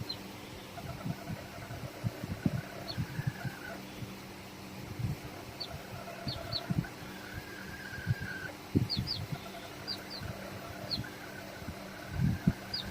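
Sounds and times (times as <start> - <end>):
birds chirping: 0.0 - 12.9
low thumps of wind or handling: 0.0 - 12.9.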